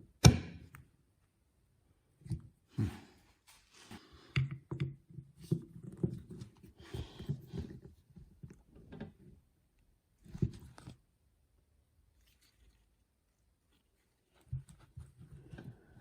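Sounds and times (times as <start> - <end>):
small knocks and clunks: 3.9 - 9.4, 10.2 - 11.1, 14.2 - 16.0.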